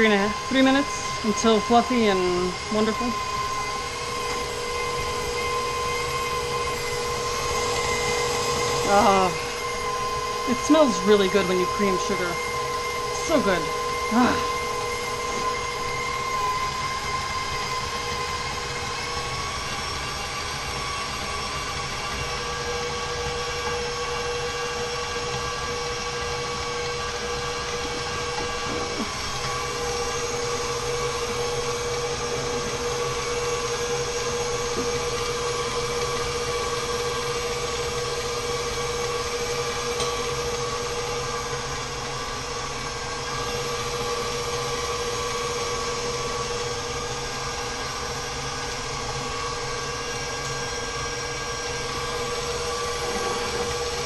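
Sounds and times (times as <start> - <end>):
electric stand mixer whining: 0.0 - 54.0.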